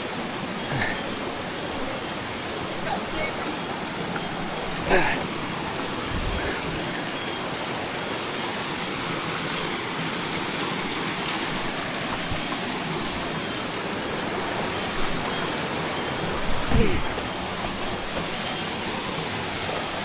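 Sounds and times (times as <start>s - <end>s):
creek water rushing over rocks: 0.0s - 20.0s.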